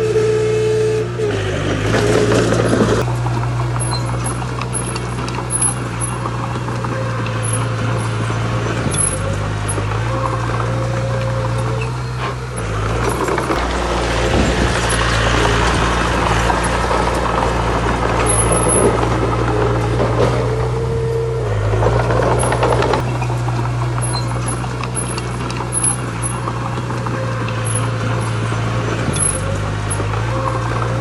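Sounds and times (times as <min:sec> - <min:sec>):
diesel machinery engine drone: 0:00.0 - 0:31.0
clattering and grinding: 0:01.6 - 0:31.0.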